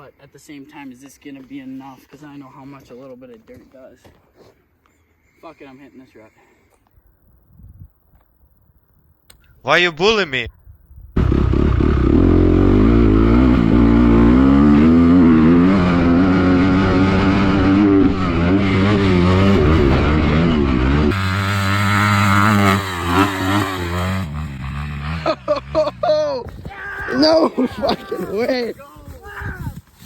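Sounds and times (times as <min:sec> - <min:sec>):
dirt bike engine revving: 0:11.2 - 0:26.4.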